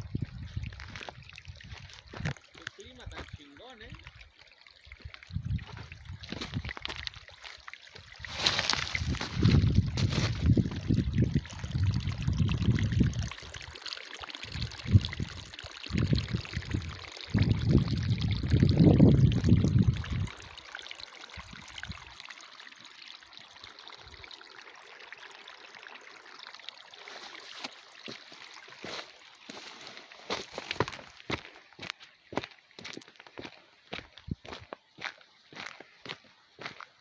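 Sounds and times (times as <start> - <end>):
stream water rushing: 5.7 - 12.4, 19.8 - 33.6.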